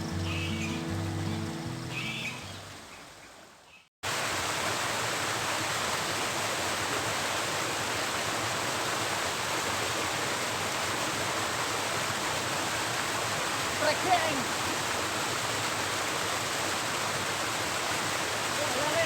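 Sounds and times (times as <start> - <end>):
music: 0.0 - 2.6
flowing water rushing: 0.0 - 19.0.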